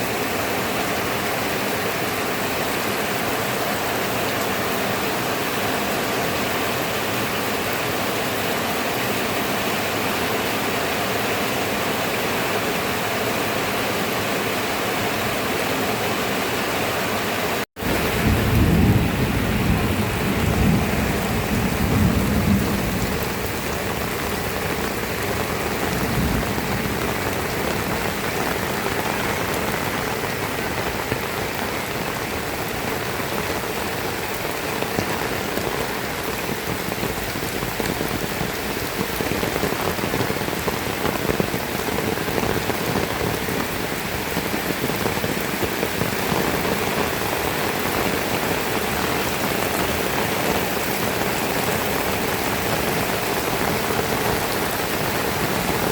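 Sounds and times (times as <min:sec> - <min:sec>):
heavy rain falling: 0:00.0 - 0:55.9
low rumble of thunder: 0:17.8 - 0:30.6.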